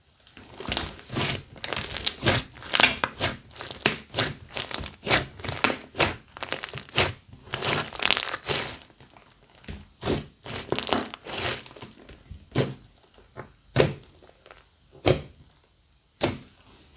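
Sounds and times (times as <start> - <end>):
sticky crackles and pops: 0.2 - 15.6
slime squeezed by hand: 0.6 - 11.9.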